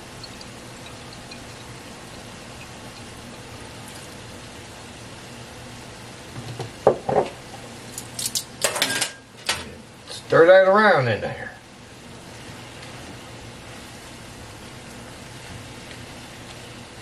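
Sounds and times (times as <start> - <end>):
meat and vegetables sizzling: 0.0 - 8.2, 11.8 - 17.0.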